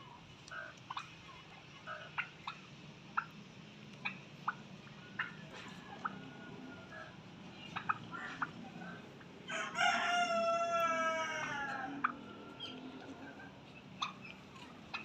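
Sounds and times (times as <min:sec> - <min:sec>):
rooster crowing: 0:09.5 - 0:12.8.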